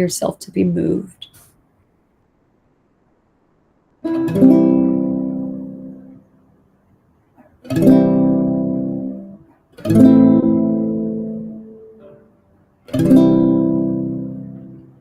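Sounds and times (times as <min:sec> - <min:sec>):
acoustic guitar strumming chords: 0:04.0 - 0:06.5, 0:07.4 - 0:15.0.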